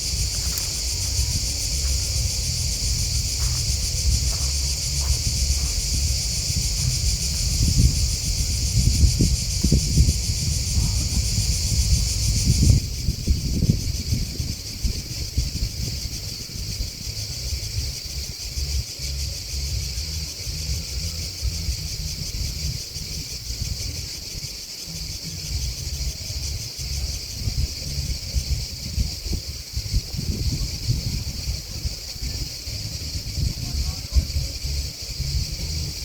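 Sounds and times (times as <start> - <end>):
low rumble: 0.0 - 13.1
grasshoppers and crickets chirping: 0.0 - 36.0.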